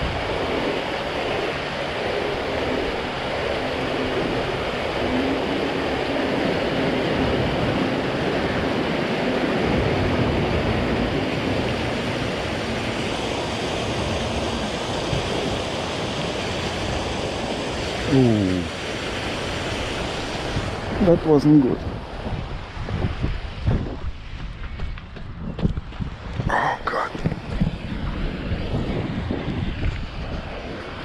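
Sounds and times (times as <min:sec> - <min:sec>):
waves breaking: 0:00.0 - 0:31.0
wind rushing over microphone: 0:00.0 - 0:31.0.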